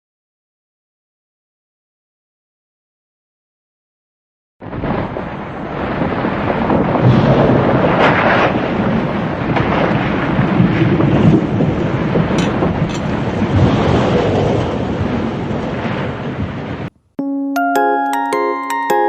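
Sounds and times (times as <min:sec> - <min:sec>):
wind gusting on microphone: 0:04.6 - 0:16.9.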